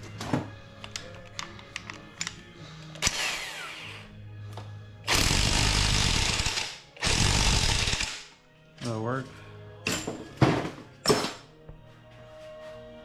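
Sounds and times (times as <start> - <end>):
handheld power tool running: 3.0 - 4.0, 5.1 - 8.2.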